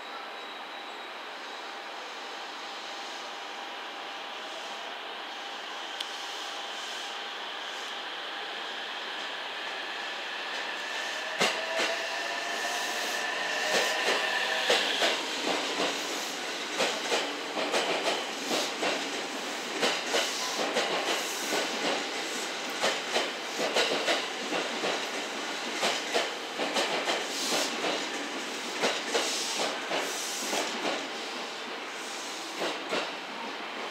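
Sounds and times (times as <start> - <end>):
train wheels clacking over rail joints: 13.6 - 16.0, 16.7 - 31.0, 32.6 - 33.1.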